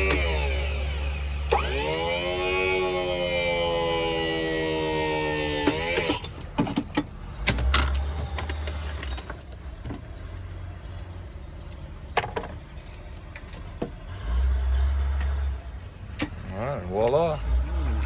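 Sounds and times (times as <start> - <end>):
metal tools clinking: 5.6 - 7.0, 7.8 - 9.5, 12.2 - 13.8, 17.8 - 18.0.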